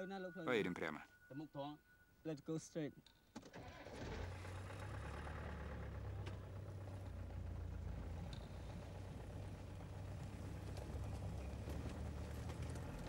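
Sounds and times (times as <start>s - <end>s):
vehicle engine humming: 3.8s - 13.0s.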